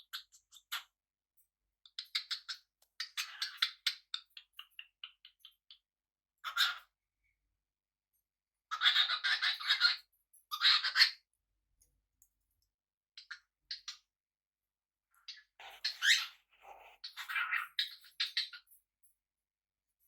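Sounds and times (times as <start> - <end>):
parrots chirping and chattering: 0.0 - 1.0, 1.8 - 7.0, 8.7 - 11.3, 13.2 - 14.1, 15.1 - 18.8.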